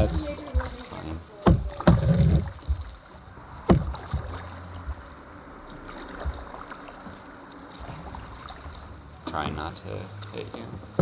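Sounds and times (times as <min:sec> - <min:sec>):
knocks against kayak: 0:00.0 - 0:03.0, 0:03.7 - 0:05.1
paddle washing in water: 0:00.0 - 0:11.0.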